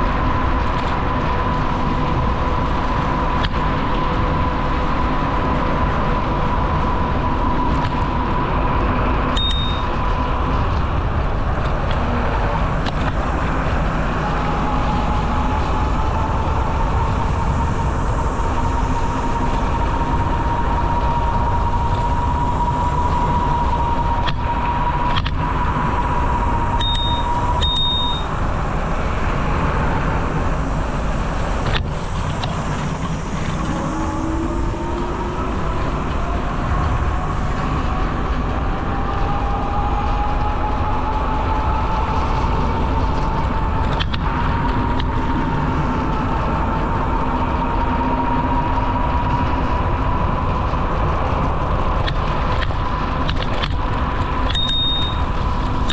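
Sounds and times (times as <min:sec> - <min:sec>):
wind: 0:00.0 - 0:55.9
bicycle bell dinging: 0:09.4 - 0:10.1, 0:26.8 - 0:28.3, 0:54.5 - 0:55.3.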